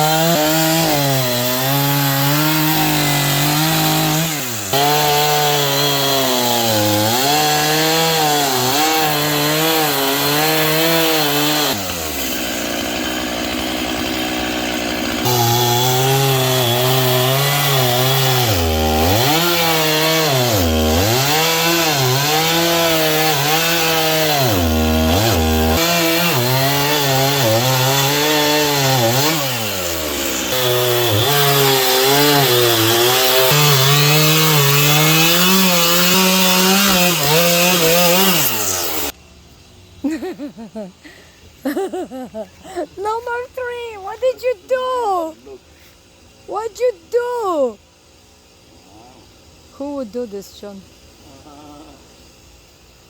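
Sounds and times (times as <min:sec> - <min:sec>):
chainsaw cutting tree trunk: 0:00.0 - 0:39.2.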